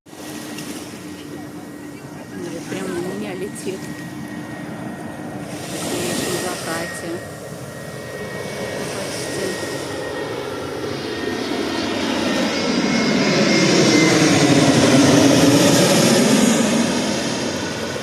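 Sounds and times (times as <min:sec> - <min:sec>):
airplane passing overhead: 0:00.1 - 0:18.0.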